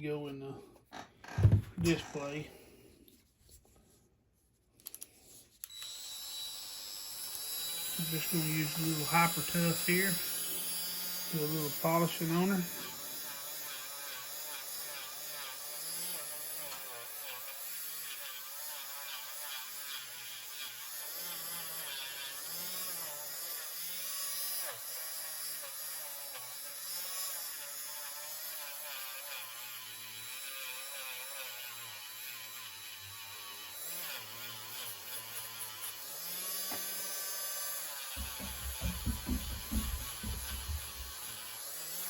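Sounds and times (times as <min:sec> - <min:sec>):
rotary tool whining: 0:04.9 - 0:42.0.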